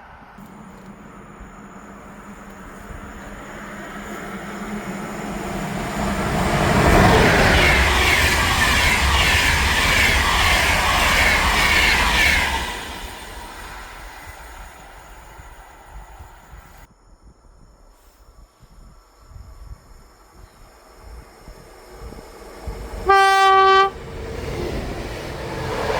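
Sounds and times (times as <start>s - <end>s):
train passing with rail noise: 0.0s - 25.9s.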